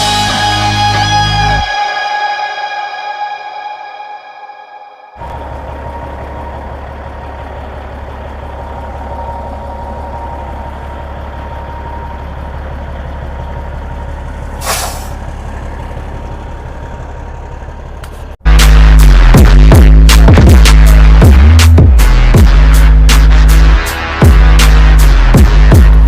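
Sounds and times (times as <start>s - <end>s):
diesel truck engine idling: 5.2s - 26.0s
air hiss: 14.6s - 15.1s.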